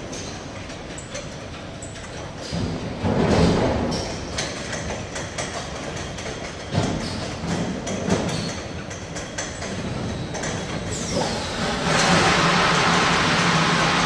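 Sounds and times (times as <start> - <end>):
mechanism clanks and clicks: 0.0 - 12.6
washing machine hum: 9.6 - 14.0.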